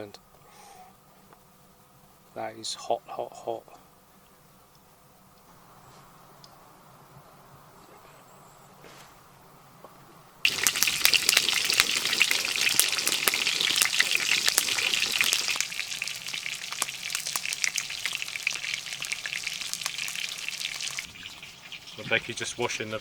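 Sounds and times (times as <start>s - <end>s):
water splashing while washing potatoes: 10.4s - 22.4s.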